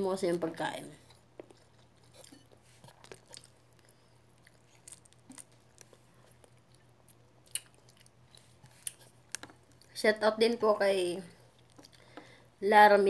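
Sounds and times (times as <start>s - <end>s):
faint chewing: 1.0s - 10.0s, 11.4s - 12.4s.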